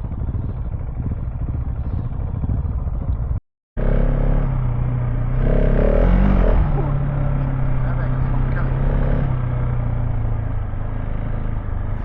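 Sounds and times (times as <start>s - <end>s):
wind noise on microphone: 0.0s - 3.4s
motorcycle engine running: 0.0s - 12.0s.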